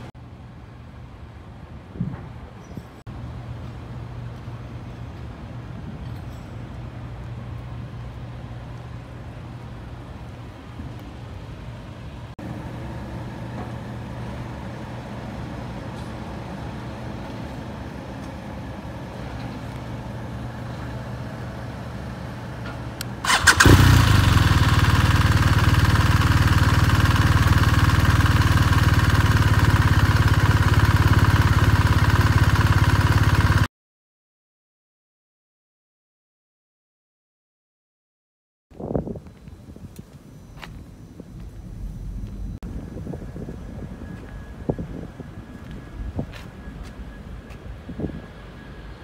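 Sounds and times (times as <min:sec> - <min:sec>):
motorcycle engine starting and idling: 0:22.4 - 0:33.7
low steady hum: 0:39.4 - 0:49.0.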